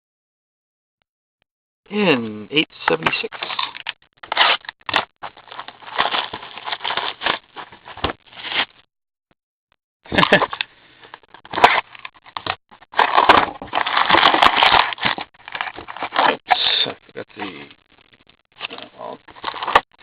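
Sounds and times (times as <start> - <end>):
plastic wrapping crinkling: 3.1 - 8.7, 10.4 - 16.6, 18.6 - 20.0.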